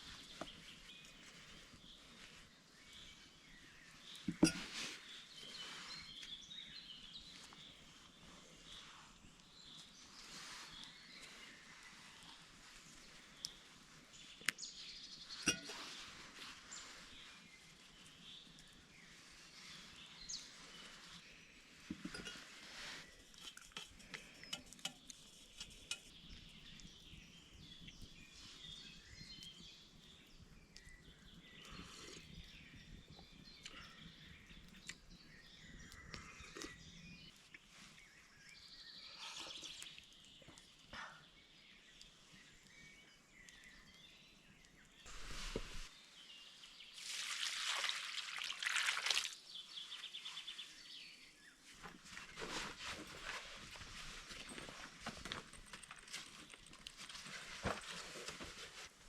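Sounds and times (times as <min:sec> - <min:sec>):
bird chirps: 0:38.0 - 0:46.8.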